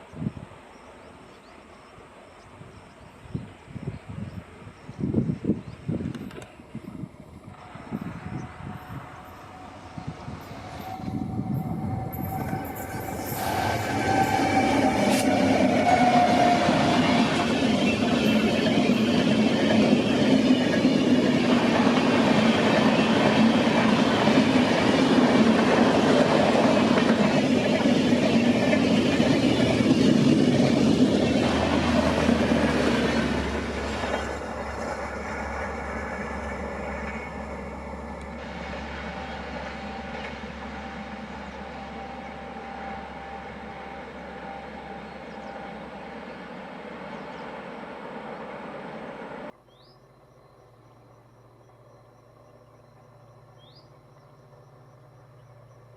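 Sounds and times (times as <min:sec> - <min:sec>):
train wheels rolling on rails: 0:04.2 - 0:49.6.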